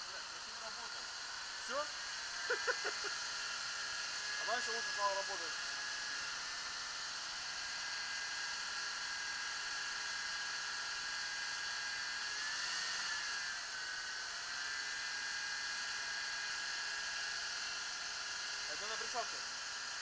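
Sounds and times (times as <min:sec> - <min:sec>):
engine high whine: 0:00.0 - 0:09.1.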